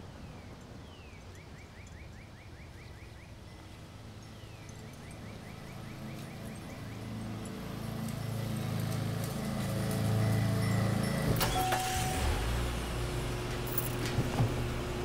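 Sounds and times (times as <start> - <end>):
songbird singing trills: 0.2 - 7.2
low steady background rumble: 11.4 - 15.0.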